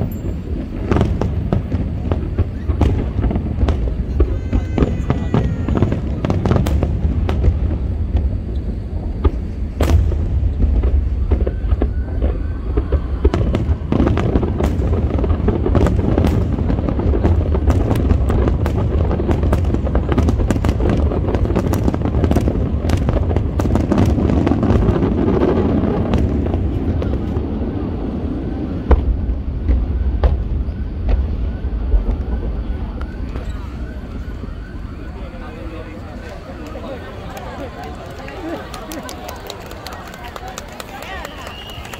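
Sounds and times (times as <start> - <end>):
fireworks bangs: 0.0 - 41.9
fireworks crackling: 0.0 - 41.9.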